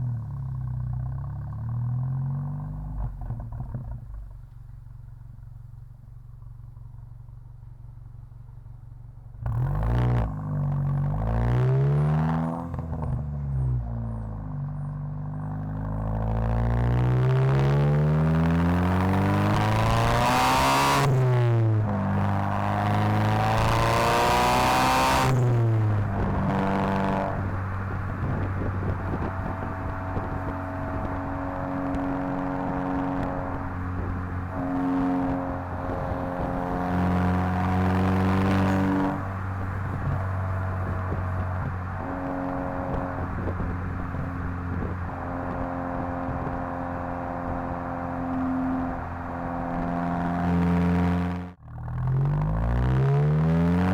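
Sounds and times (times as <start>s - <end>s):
car engine accelerating: 9.4s - 53.9s.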